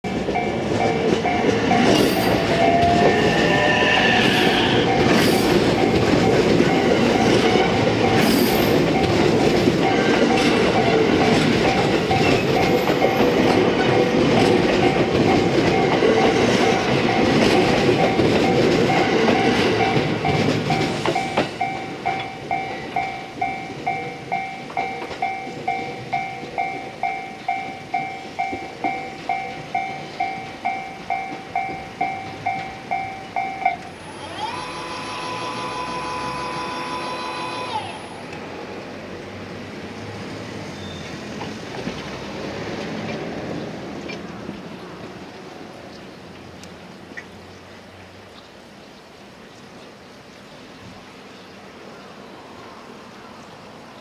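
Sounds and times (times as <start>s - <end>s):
two-tone warning bell ringing: 0.0s - 38.3s
wheels clacking over rail joints: 0.1s - 35.0s
electric train passing: 0.1s - 48.3s.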